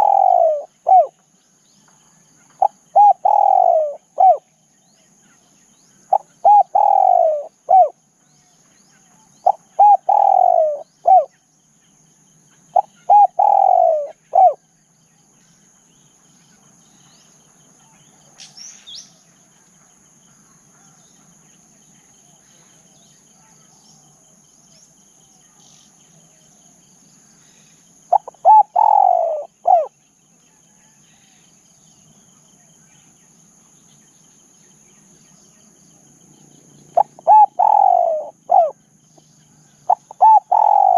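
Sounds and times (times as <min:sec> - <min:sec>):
dove cooing: 0:00.0 - 0:01.2, 0:02.5 - 0:04.5, 0:06.1 - 0:08.0, 0:09.4 - 0:11.3, 0:12.7 - 0:14.6, 0:28.1 - 0:29.9, 0:37.0 - 0:38.8, 0:39.9 - 0:40.9
high-pitched insect drone: 0:23.9 - 0:40.9.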